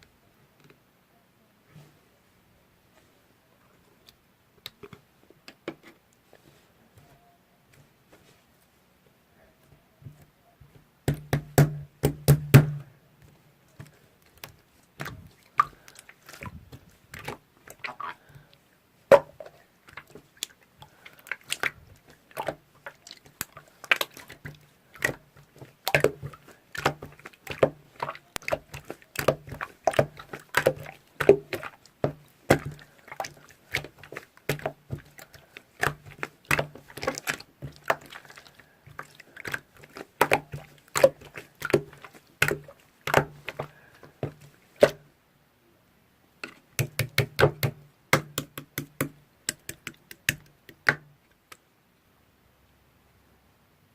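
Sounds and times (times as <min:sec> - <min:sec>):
chewing crunchy food: 0:13.9 - 0:18.6, 0:19.4 - 0:44.8.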